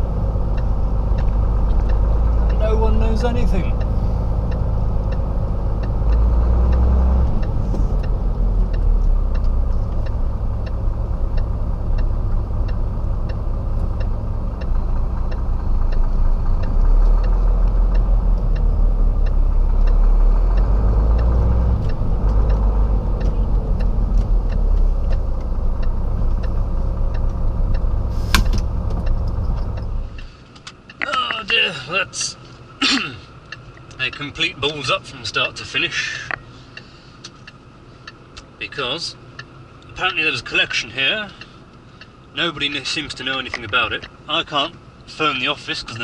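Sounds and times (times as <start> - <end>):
lorry diesel engine rumbling: 0.0 - 46.0
single click: 28.2 - 28.7.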